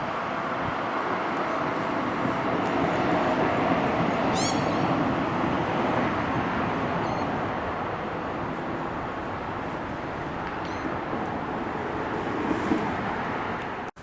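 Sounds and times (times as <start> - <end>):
train rumbling past: 0.0 - 14.0
high bird chirp: 4.3 - 5.0.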